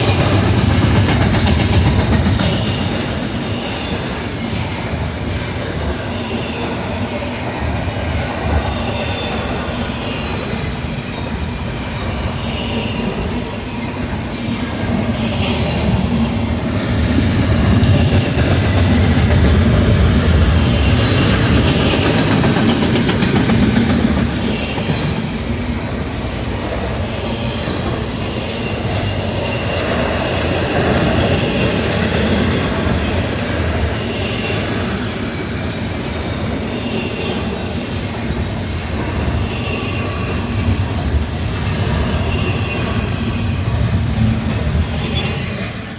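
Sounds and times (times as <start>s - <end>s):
freight train wheels on rails: 0.0s - 45.9s.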